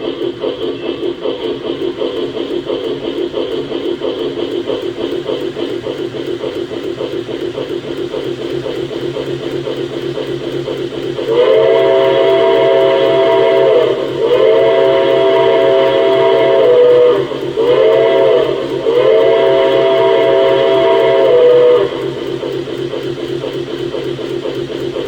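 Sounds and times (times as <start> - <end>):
model train running sounds: 0.0 - 25.0
steam whistle blasts: 11.3 - 22.2.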